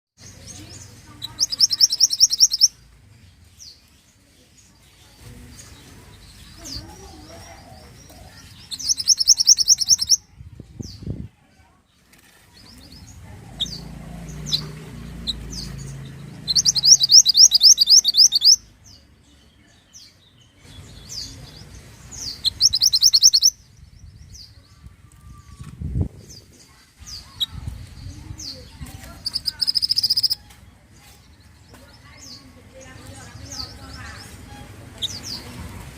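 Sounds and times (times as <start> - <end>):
short high bird chirps: 1.2 - 2.7, 8.6 - 10.2, 16.4 - 18.6, 22.2 - 23.6, 29.2 - 30.4
songbird rapid high notes: 13.6 - 18.6.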